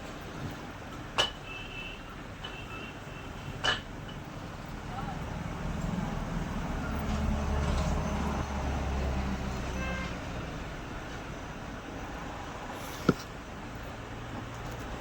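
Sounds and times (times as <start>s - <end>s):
vehicle horn toot: 1.4s - 3.6s, 9.7s - 10.2s
passing vehicle rumble: 4.4s - 13.0s.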